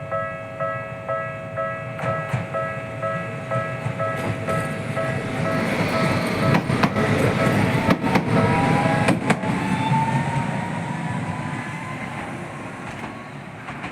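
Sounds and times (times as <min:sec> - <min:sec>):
tram rumbling: 0:00.0 - 0:13.9
wheels clicking over rail joints: 0:03.8 - 0:09.7.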